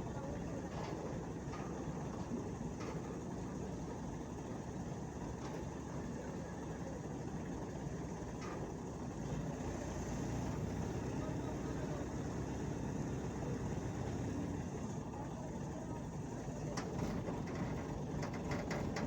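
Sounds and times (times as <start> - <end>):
low engine rumble: 9.0 - 19.0.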